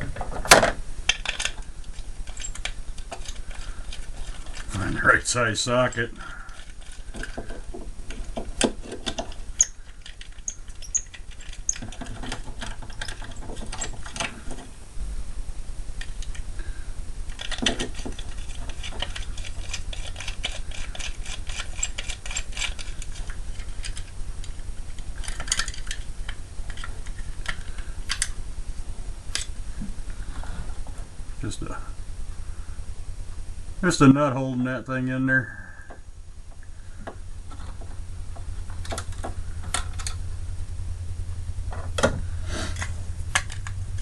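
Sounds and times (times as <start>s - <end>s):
socket ratchet clicking: 8.6s - 14.3s.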